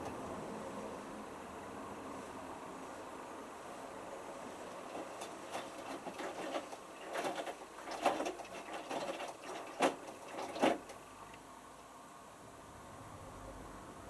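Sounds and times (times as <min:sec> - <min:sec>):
washing machine drum tumbling: 0:04.0 - 0:10.9
water sloshing: 0:04.0 - 0:10.9.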